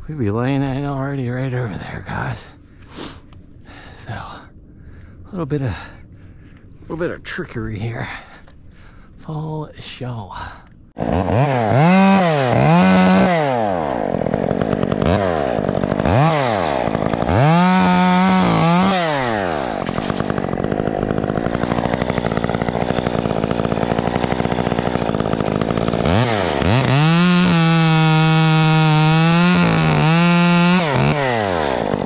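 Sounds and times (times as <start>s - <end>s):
chainsaw revving: 11.0s - 32.0s.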